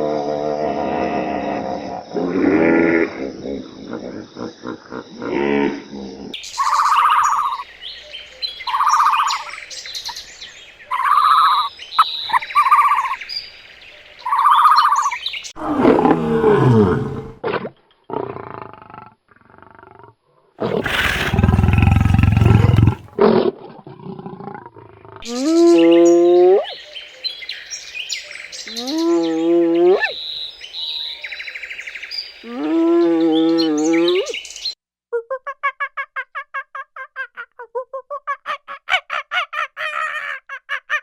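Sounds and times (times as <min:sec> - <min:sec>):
farm animals calling: 0:20.6 - 0:23.2.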